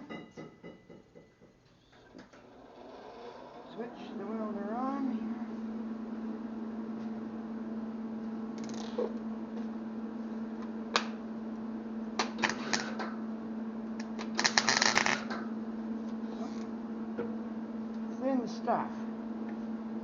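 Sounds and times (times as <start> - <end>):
welder humming: 3.3 - 20.0
welding arc crackling: 12.2 - 13.2, 14.0 - 15.5.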